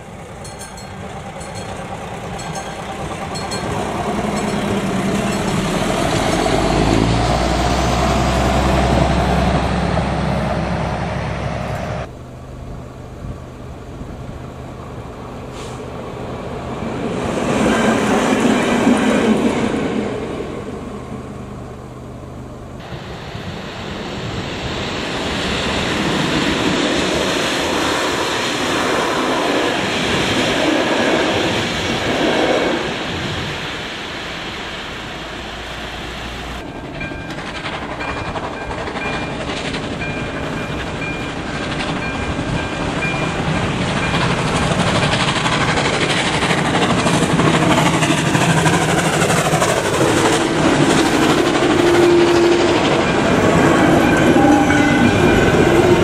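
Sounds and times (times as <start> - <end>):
train wheels clattering on rails: 0.0 - 10.2, 36.6 - 56.0
steam locomotive rolling: 0.0 - 56.0.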